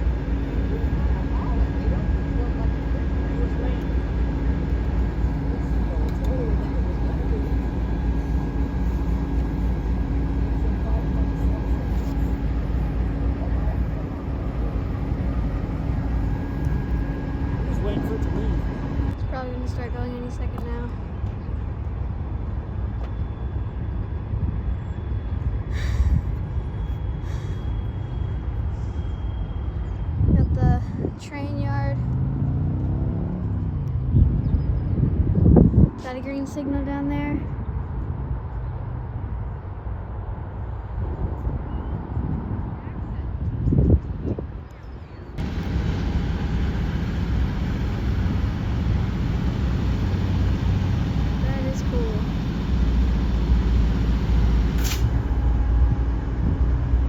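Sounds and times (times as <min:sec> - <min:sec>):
faint engine hum: 0:00.0 - 0:57.0
passenger train rumbling: 0:00.0 - 0:57.0
short hisses of air: 0:54.7 - 0:55.2.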